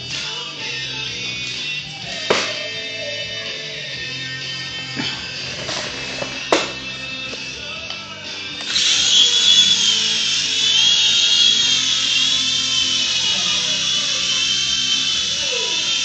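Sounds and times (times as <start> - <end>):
toy helicopter motors whining: 8.4 - 16.0.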